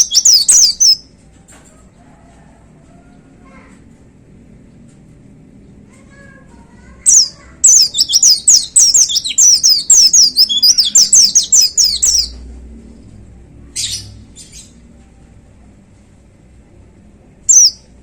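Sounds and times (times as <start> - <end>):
small bird singing: 0.0 - 1.1, 6.8 - 12.5, 13.8 - 14.8, 17.5 - 18.0.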